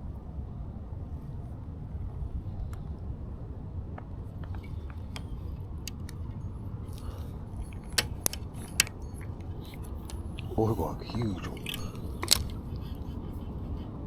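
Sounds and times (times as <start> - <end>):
small clicks and ticks: 4.0 - 10.6, 11.3 - 14.0
loud sharp clicks: 7.0 - 10.5.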